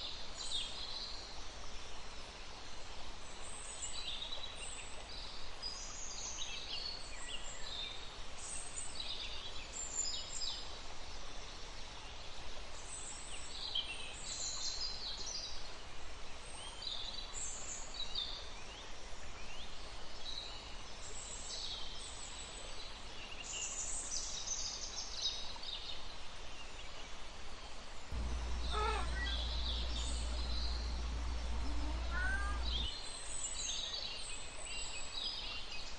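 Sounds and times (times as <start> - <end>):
low wind rumble: 28.2 - 32.9
small birds chirping: 28.2 - 33.0.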